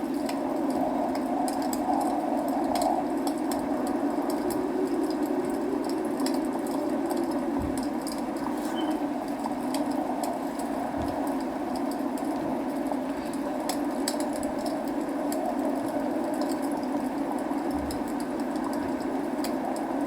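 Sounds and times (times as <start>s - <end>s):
rain rushing: 0.0s - 20.0s
wood fire crackling: 0.0s - 20.0s.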